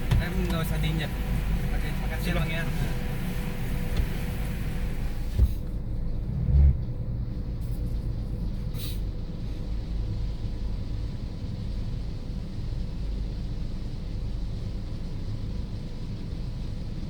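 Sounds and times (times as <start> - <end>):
car wash rumbling: 0.0 - 17.0
short hiss: 8.8 - 9.0.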